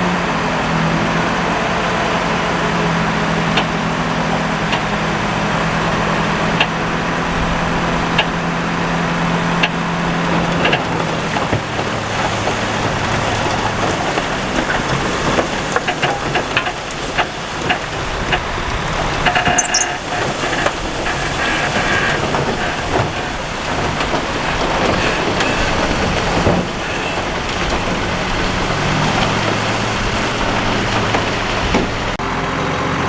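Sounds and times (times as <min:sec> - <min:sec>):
diesel engine running: 0:00.0 - 0:33.0
clanks of rock and metal: 0:06.5 - 0:32.2.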